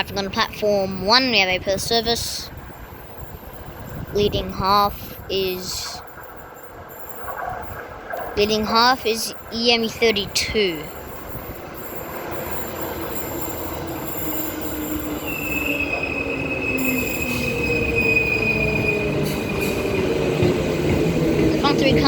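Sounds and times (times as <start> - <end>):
electric train whine: 0.5 - 22.0
high train squeal: 10.8 - 22.0.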